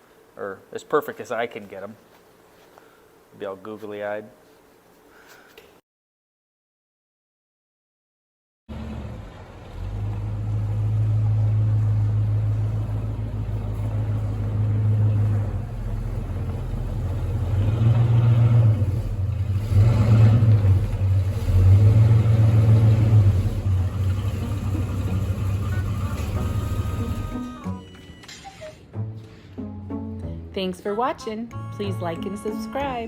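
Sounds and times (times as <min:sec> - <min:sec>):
pickup truck engine rumbling and revving: 0:08.7 - 0:27.4.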